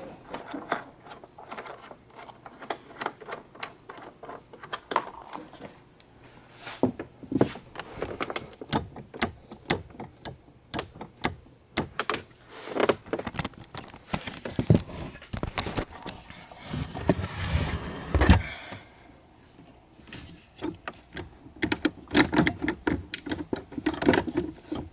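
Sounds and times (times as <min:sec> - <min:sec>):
clicks and knocks of tools: 0:00.3 - 0:05.7, 0:20.6 - 0:24.9.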